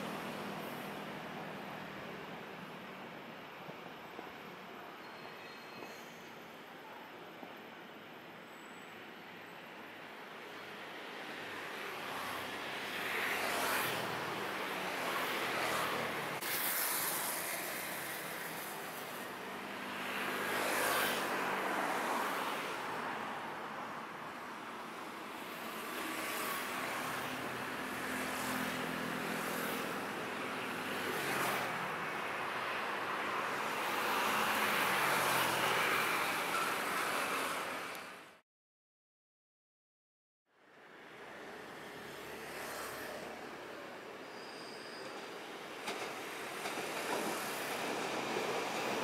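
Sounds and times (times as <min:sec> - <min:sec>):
train rumbling past: 0:44.3 - 0:49.0.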